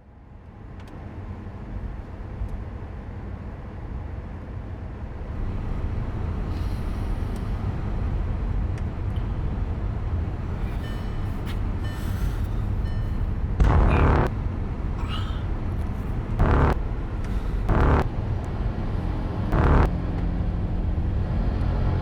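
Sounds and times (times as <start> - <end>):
steady low rumble: 4.4 - 22.0.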